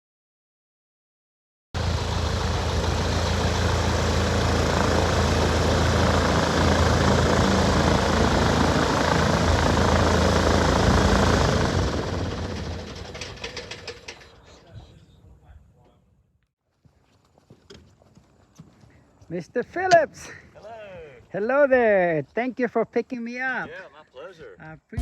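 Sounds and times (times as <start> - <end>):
propeller airplane engine running: 1.8 - 14.5.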